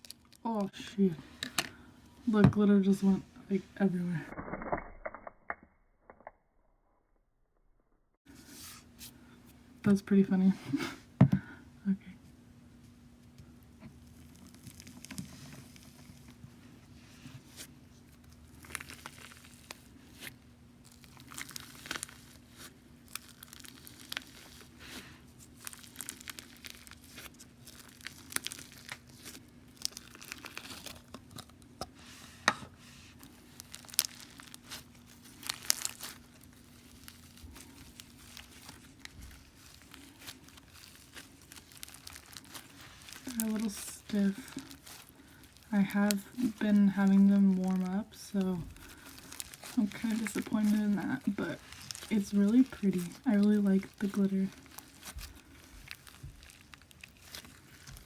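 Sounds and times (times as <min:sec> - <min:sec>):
slime squishing and crackling: 0:00.0 - 0:00.8, 0:13.6 - 0:16.4, 0:17.0 - 0:31.8, 0:33.1 - 0:58.0
faint steady hum: 0:00.0 - 0:04.3, 0:08.3 - 0:58.0.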